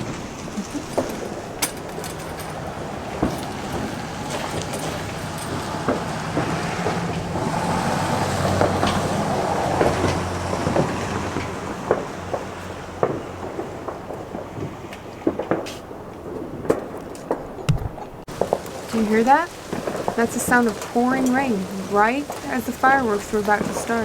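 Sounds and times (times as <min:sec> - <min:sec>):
heavy rain hiss: 0:18.2 - 0:24.0.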